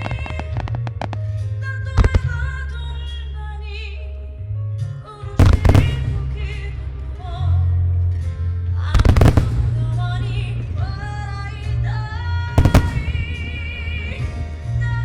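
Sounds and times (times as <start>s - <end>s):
fireworks bursting: 0.0s - 1.4s, 2.0s - 2.4s, 5.4s - 6.8s, 9.0s - 11.9s, 12.5s - 14.6s
music over loudspeakers: 0.0s - 15.0s.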